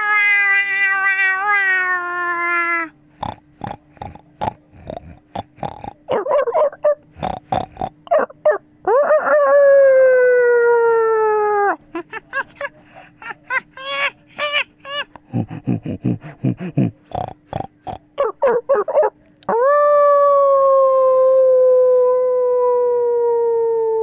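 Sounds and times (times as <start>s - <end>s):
person howling like a cat: 0.0s - 3.0s, 8.8s - 11.8s, 19.5s - 24.0s
vocal clicks and yelps: 6.1s - 7.1s, 8.0s - 9.3s, 15.0s - 17.0s, 18.0s - 19.6s.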